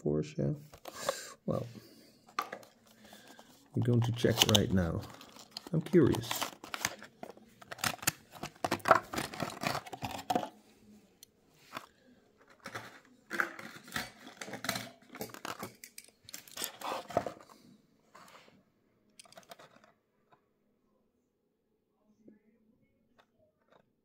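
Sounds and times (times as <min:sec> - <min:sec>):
plastic packaging crinkling: 0:02.3 - 0:10.6.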